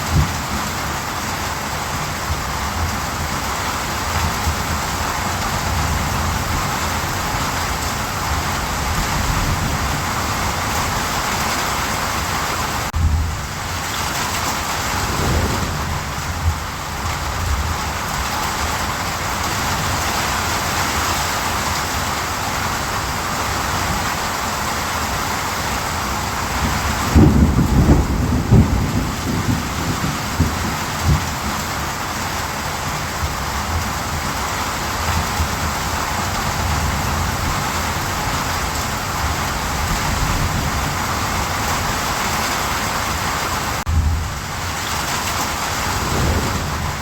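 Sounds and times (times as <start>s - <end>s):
steady rain: 0.0s - 47.0s
low rumble of thunder: 13.0s - 19.0s, 26.5s - 31.8s, 45.5s - 47.0s.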